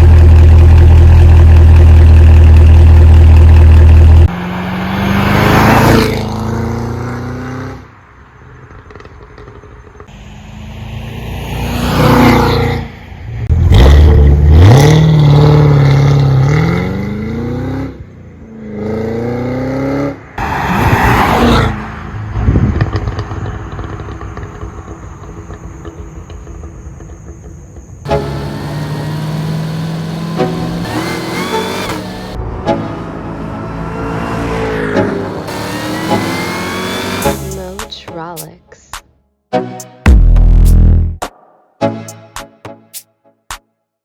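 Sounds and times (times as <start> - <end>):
car engine driving past: 4.2 - 9.5, 28.1 - 37.8.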